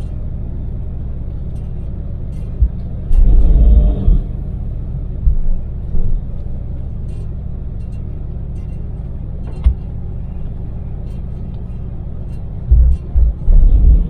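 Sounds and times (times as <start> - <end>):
van engine and road drone: 0.0 - 14.0
low thumping: 2.5 - 7.0, 11.9 - 14.0.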